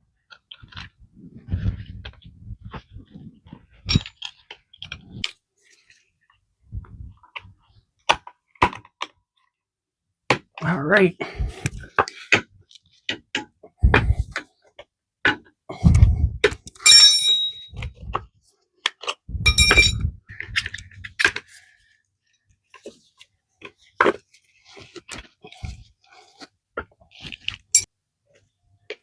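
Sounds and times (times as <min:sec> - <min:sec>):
metal tools clinking and knocking: 0:03.8 - 0:04.4, 0:16.8 - 0:17.9, 0:19.4 - 0:20.1
ringing metallic clanks: 0:16.8 - 0:17.8, 0:19.5 - 0:20.0.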